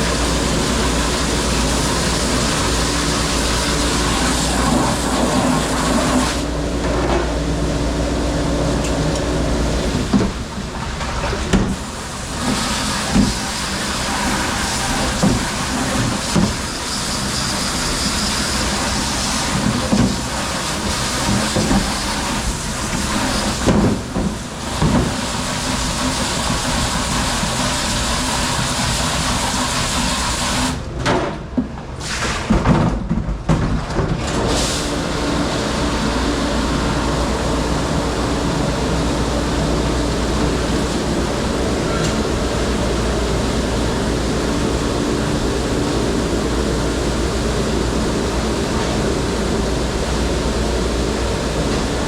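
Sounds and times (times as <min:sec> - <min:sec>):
dishwashing machinery running: 0:00.0 - 0:52.0.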